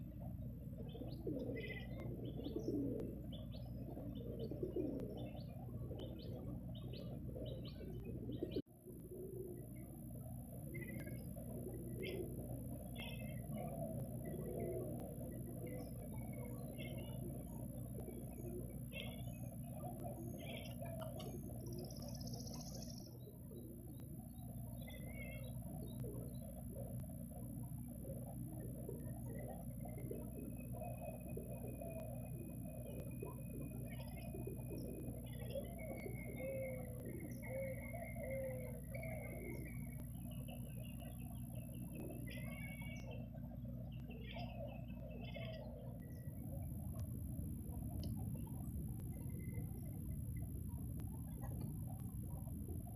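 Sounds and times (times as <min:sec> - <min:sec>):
steady low hum: 0:00.0 - 0:52.9
bird chirps and twitters: 0:10.7 - 0:26.6, 0:29.0 - 0:46.4.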